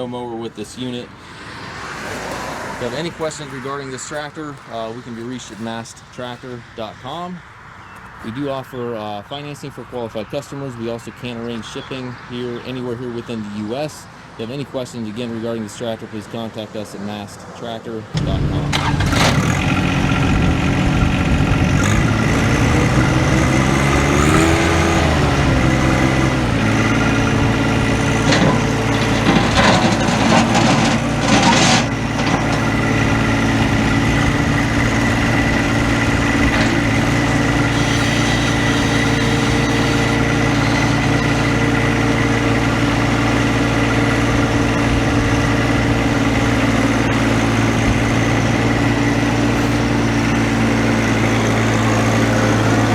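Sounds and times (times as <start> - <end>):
diesel tractor engine idling: 18.2 - 52.9.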